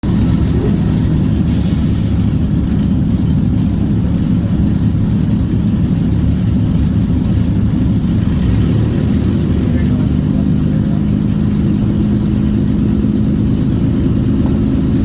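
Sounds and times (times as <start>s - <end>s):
aircraft piston engines droning: 0.0s - 15.0s.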